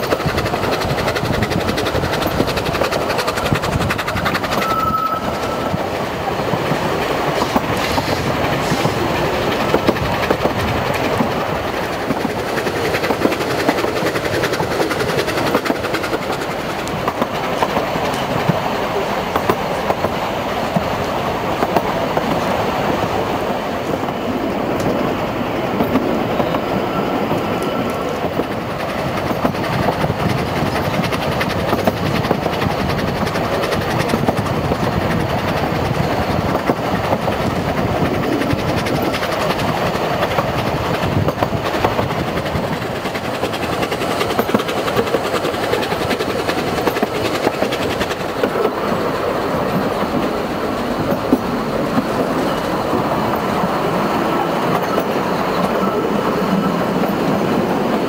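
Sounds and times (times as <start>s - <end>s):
train wheels rumbling and clattering: 0.0s - 58.0s
thin squeal: 4.6s - 5.9s.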